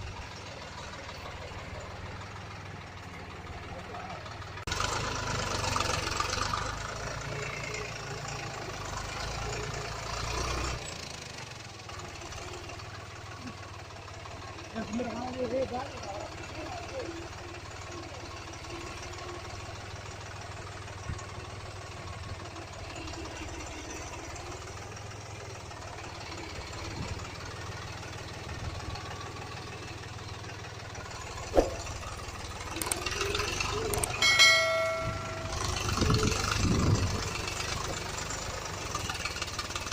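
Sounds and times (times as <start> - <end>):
truck engine rumbling: 0.0 - 39.9
steady high tone: 34.0 - 36.4.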